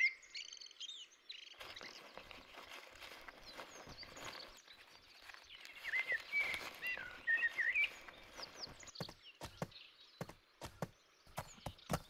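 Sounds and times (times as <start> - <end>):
hooves on stony ground: 1.6 - 12.0
songbird whistling: 5.6 - 9.6.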